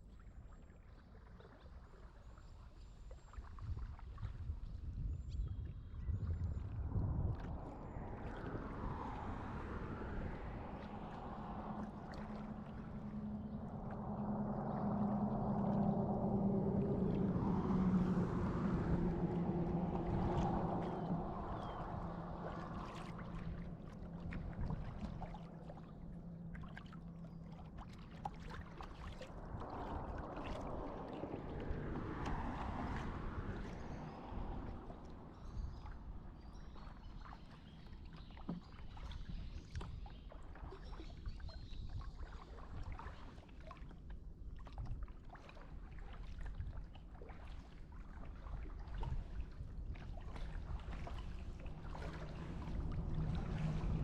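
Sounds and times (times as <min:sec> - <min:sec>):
water splashing around kayak: 0:00.0 - 0:54.0
low steady hum: 0:06.2 - 0:36.4, 0:49.0 - 0:54.0.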